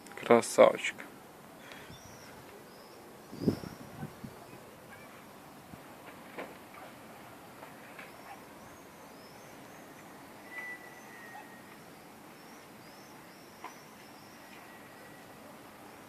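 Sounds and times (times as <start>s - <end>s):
background hiss: 0.0s - 16.0s
birds chirping: 1.4s - 5.4s, 6.8s - 16.0s
thin held bird whistle: 8.0s - 15.4s.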